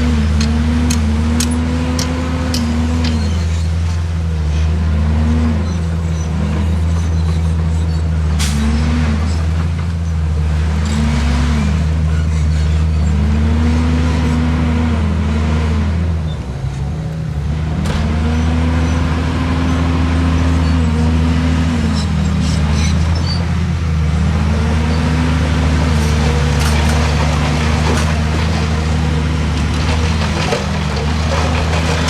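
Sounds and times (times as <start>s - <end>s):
diesel engine revving: 0.0s - 32.0s
sharp knocks: 17.8s - 18.4s.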